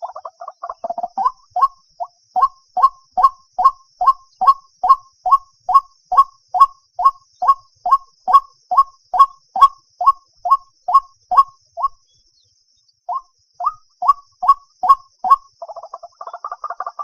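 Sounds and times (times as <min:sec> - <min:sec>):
bird calling hollow kwok notes: 0:13.1 - 0:17.0.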